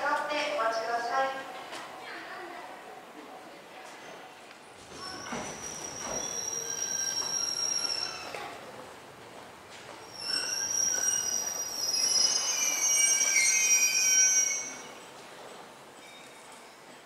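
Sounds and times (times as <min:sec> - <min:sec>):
train brakes squealing: 0:05.0 - 0:08.6, 0:10.0 - 0:15.1.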